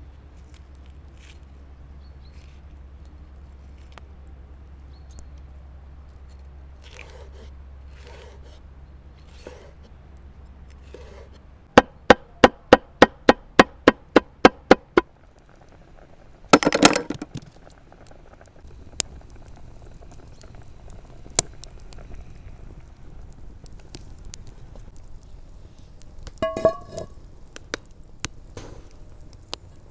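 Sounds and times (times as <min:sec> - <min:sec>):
knife chopping: 0:11.8 - 0:15.0
short clatter: 0:28.5 - 0:29.8.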